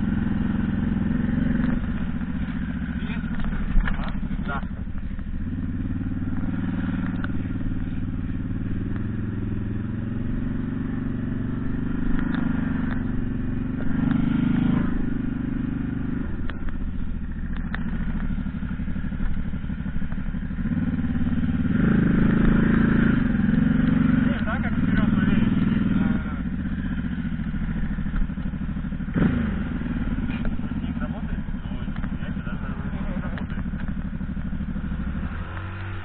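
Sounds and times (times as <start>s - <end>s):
engine running and revving: 0.0s - 36.0s.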